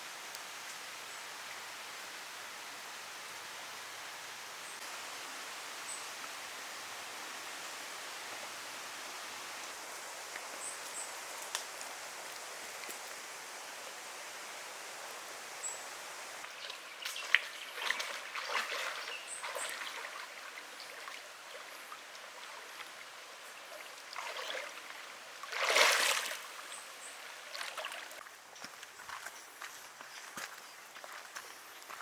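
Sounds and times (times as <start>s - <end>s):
creek flowing: 0.0s - 32.0s.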